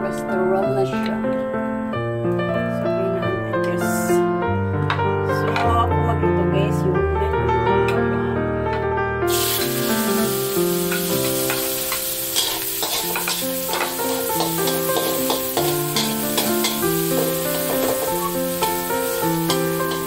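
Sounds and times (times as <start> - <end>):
background music with sustained notes: 0.0 - 20.0
garlic sizzling in hot oil: 9.3 - 20.0
metal spatula scraping wok: 10.8 - 20.0.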